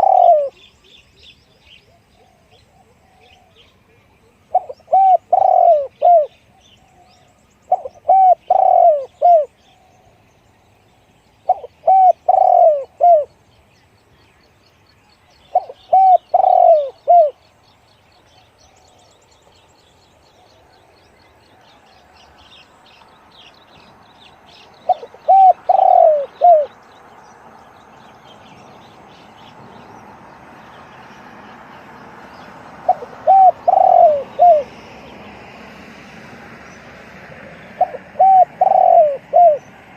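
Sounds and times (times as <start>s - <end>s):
dove cooing: 0.0s - 0.8s, 1.9s - 7.1s, 7.7s - 10.0s, 11.4s - 13.4s, 15.5s - 17.4s, 24.8s - 26.8s, 32.5s - 35.2s, 37.4s - 39.9s.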